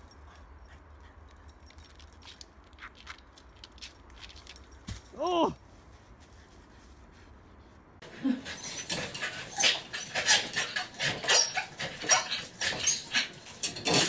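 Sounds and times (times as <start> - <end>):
dog yipping and whining: 8.5 - 13.3.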